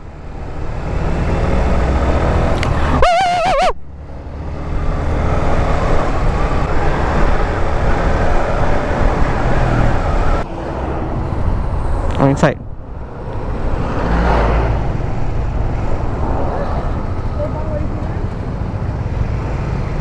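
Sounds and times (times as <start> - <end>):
wind noise on microphone: 4.8 - 18.9.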